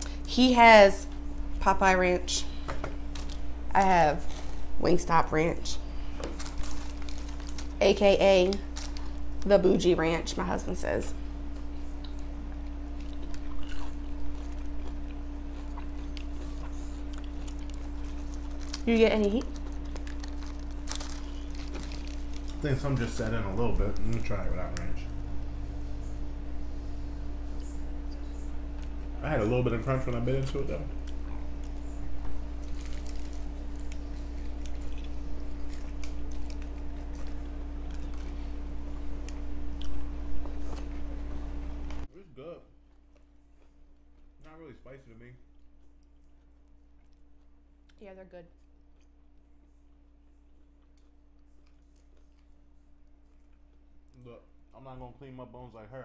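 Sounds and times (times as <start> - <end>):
steady low hum: 0.0 - 56.0
chewing and wet mouth sounds: 11.4 - 23.0, 31.0 - 42.0, 42.7 - 44.6, 45.4 - 54.4
chewing with wet mouth smacks: 11.5 - 22.6, 45.5 - 48.0.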